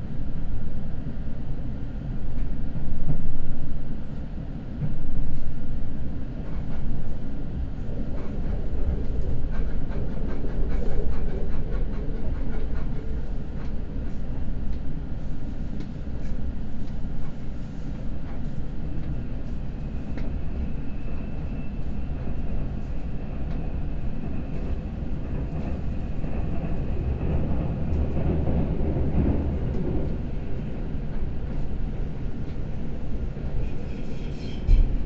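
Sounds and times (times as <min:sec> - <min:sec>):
train wheels rumbling on rails: 0:00.1 - 0:35.0.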